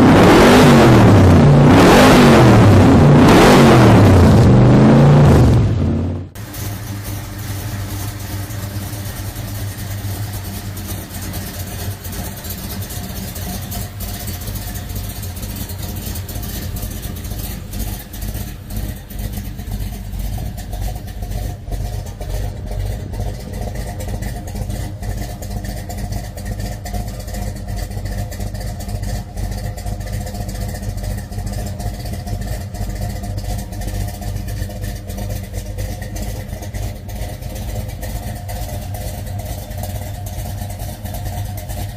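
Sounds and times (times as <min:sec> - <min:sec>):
car engine rumbling at low revs: 0:00.0 - 0:41.9.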